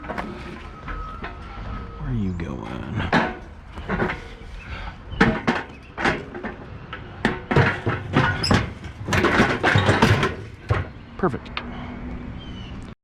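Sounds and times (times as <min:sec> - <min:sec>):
scrap metal knocks and clanks: 0:00.0 - 0:01.8, 0:03.0 - 0:11.1.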